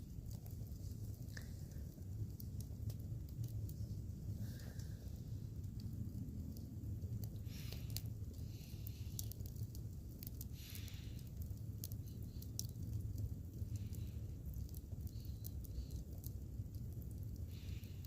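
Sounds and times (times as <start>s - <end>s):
wood fire crackling and popping: 0.0s - 18.0s
soft hisses: 7.2s - 9.5s.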